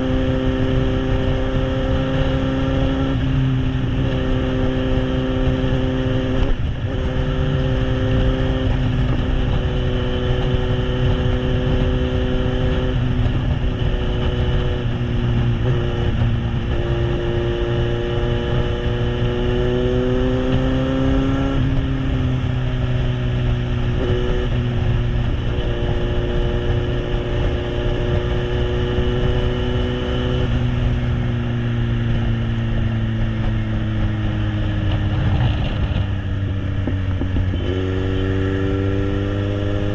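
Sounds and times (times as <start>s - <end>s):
motorcycle engine at speed: 0.0s - 39.9s.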